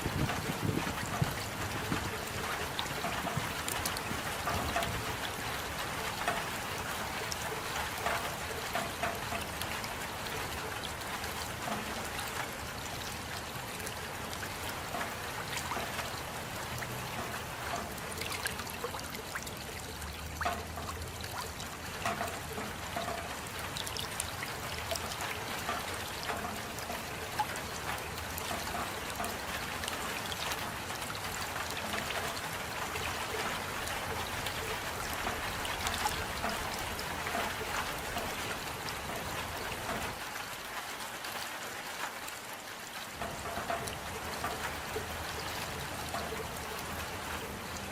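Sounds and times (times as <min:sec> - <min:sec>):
raindrops landing close by: 0:00.0 - 0:47.9
steady rain: 0:00.0 - 0:47.9.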